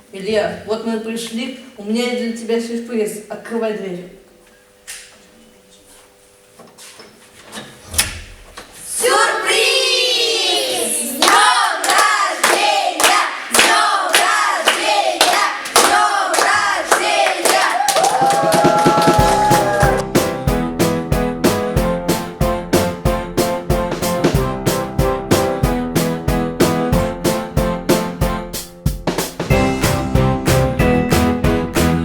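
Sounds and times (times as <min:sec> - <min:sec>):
group singing: 0:08.8 - 0:17.7
hand claps: 0:11.2 - 0:20.0
group shouting: 0:17.5 - 0:20.0
piano music: 0:19.0 - 0:32.0.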